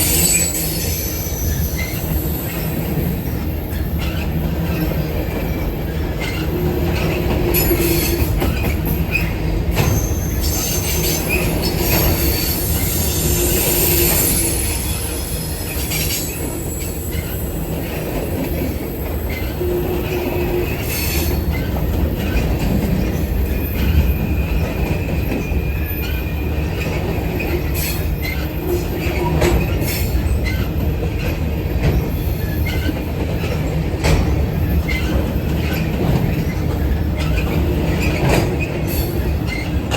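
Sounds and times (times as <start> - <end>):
high-pitched wheel squeal: 0.0 - 2.8, 9.8 - 17.4
train wheels rumbling on rail: 0.0 - 39.9.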